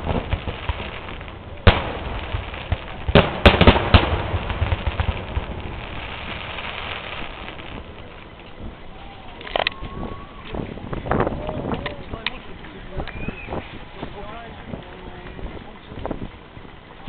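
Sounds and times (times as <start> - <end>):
fireworks bangs: 0.0 - 12.3
fireworks crackle and rumble: 0.0 - 17.0.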